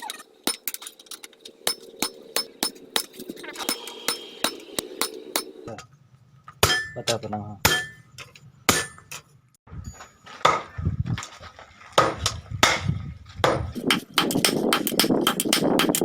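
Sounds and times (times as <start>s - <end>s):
hammer striking steel: 0.4s - 0.9s, 1.6s - 5.7s, 6.6s - 9.3s, 13.5s - 16.0s.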